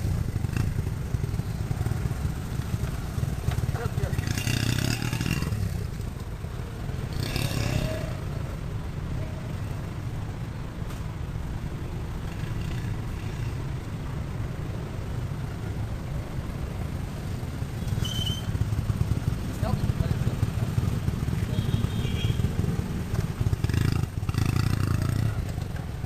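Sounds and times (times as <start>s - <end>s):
motorcycle engine running: 0.0s - 8.3s, 16.7s - 26.0s.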